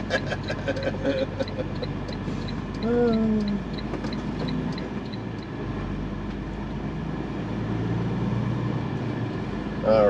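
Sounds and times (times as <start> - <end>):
diesel truck engine idling: 0.0 - 6.9.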